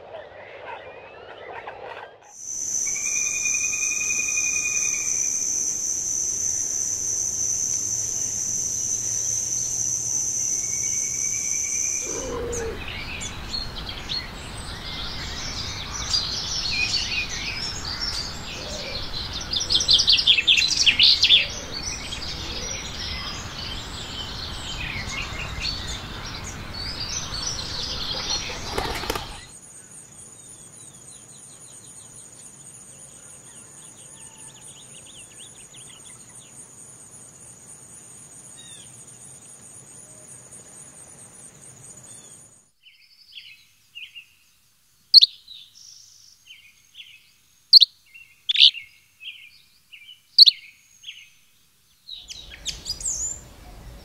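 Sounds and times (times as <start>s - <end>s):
pulsing insect chorus: 0.0s - 42.7s
high-pitched insect trill: 2.4s - 12.8s
birds chirping and calling: 10.9s - 29.6s, 52.2s - 54.0s.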